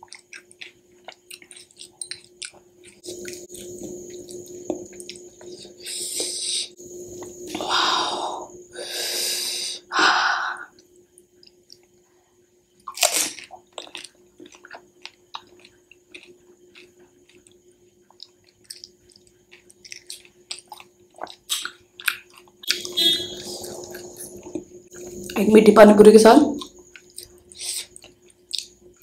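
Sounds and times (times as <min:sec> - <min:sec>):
crunchy food being chewed: 0:00.0 - 0:06.4, 0:10.7 - 0:12.0, 0:12.7 - 0:25.4, 0:26.6 - 0:29.0
breathy bursts: 0:07.5 - 0:10.7.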